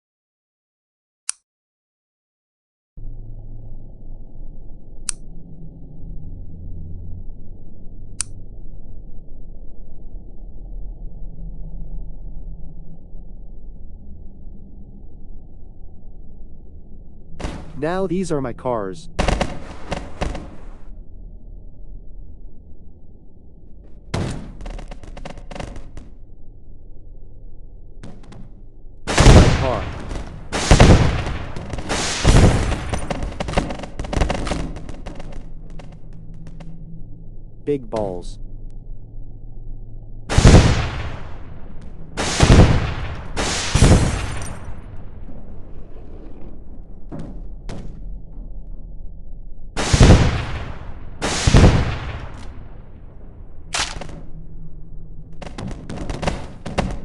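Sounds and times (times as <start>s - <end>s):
rapid machine-gun fire: 29.1s - 35.2s
loud blasts: 29.1s - 35.4s, 40.3s - 44.8s, 49.8s - 52.9s
sharp cracks: 29.1s - 36.7s, 40.3s - 44.8s, 49.8s - 52.8s, 53.7s - 54.3s.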